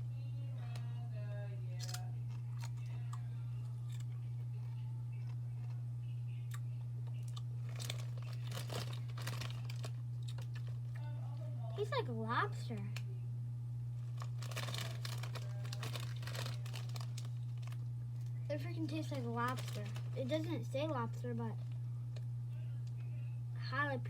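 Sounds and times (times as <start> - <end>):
steady low hum: 0.0 - 24.0
person chewing crunchy chips: 1.8 - 5.8, 6.5 - 10.9, 14.0 - 18.3, 19.1 - 20.2.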